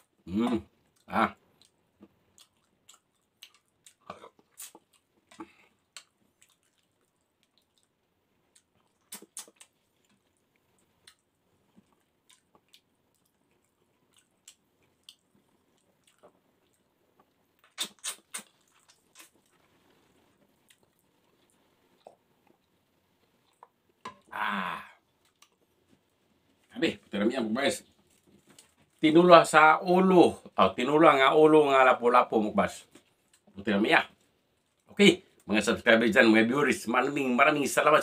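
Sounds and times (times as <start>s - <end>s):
person chewing softly: 0.0s - 29.2s, 32.7s - 35.5s
lip smacks and clicks: 0.9s - 19.6s.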